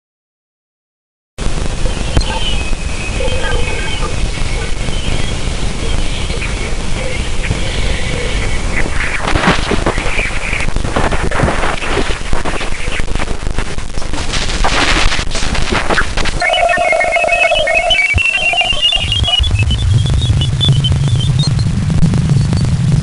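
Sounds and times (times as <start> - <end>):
crackling static with pops: 1.4 - 23.0
steady hum-like tone: 16.3 - 22.9
short high beeps: 16.4 - 19.6.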